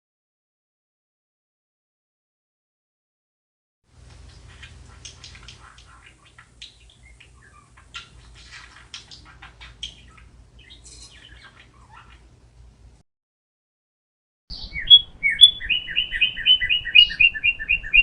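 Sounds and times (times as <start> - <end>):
steady low hum: 3.9 - 13.0
birds chirping: 4.0 - 13.0, 14.5 - 18.0.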